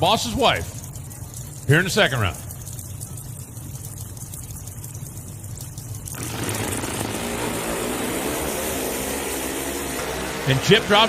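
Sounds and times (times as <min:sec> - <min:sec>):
motorcycle engines revving: 0:06.2 - 0:11.0.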